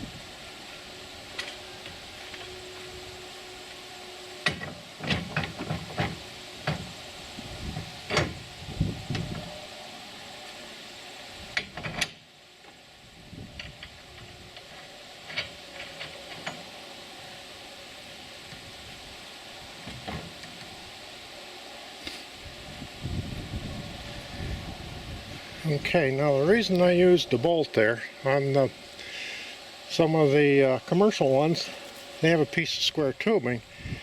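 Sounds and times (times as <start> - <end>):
steady hiss: 0.0 - 34.0
metal parts knocking and clanking: 31.5 - 32.4.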